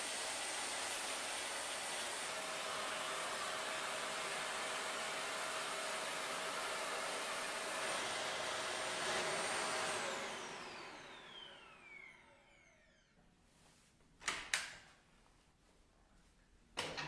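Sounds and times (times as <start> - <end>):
vacuum motor winding down: 0.0 - 13.2
vacuum cleaner running: 0.0 - 13.6.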